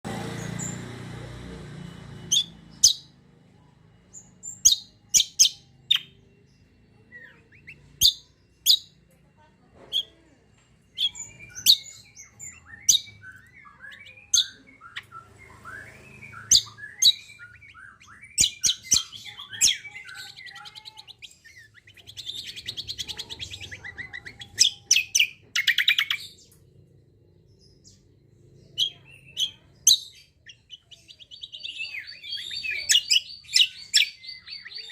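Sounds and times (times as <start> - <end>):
faint low hum: 0.1 - 34.9
bird chattering warble: 11.0 - 26.4.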